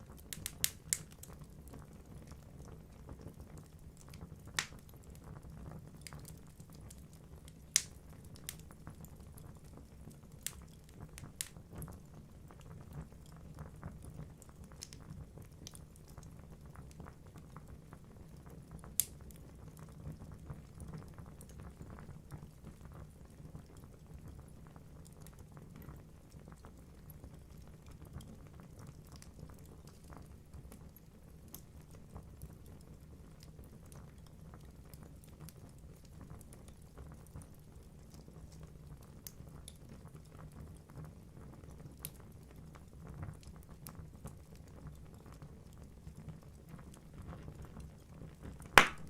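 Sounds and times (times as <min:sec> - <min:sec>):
wood crackling and popping: 0:00.0 - 0:24.4, 0:43.2 - 0:49.0.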